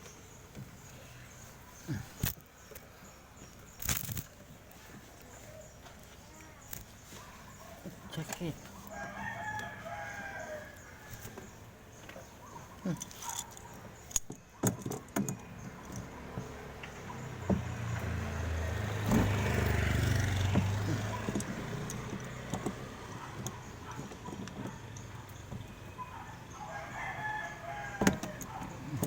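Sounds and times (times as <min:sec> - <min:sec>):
sharp clicks and knocks: 0:13.0 - 0:18.2, 0:20.4 - 0:25.8
vehicle passing: 0:15.4 - 0:29.0.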